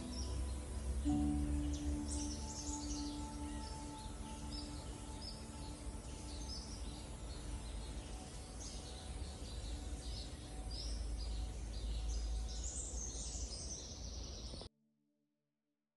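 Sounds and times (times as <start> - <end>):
steady low rumble: 0.0 - 13.4
birds chirping: 0.0 - 14.7.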